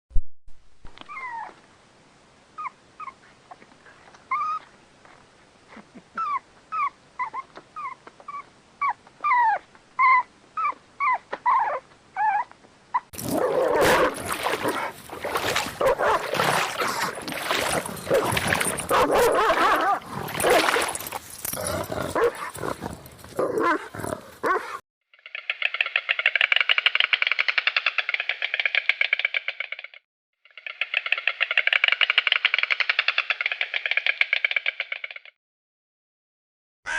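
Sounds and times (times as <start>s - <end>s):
dog whimpering: 1.1s - 1.5s, 4.3s - 4.7s, 6.1s - 13.1s.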